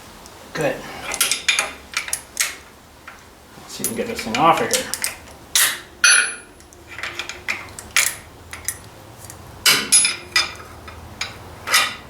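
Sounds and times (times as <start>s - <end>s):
metal-on-metal knocks and clinks: 3.8s - 12.0s.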